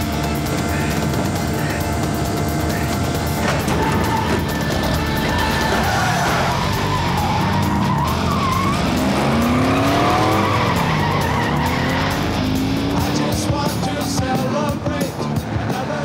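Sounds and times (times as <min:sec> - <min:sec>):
car engine revving hard: 0:00.0 - 0:16.0
tyre squeal: 0:00.2 - 0:12.3.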